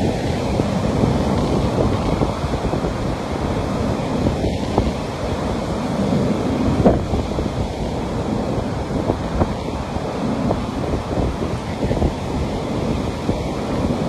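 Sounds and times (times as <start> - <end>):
ocean surf washing on beach: 0.0 - 14.0
wind buffeting microphone: 0.0 - 14.0.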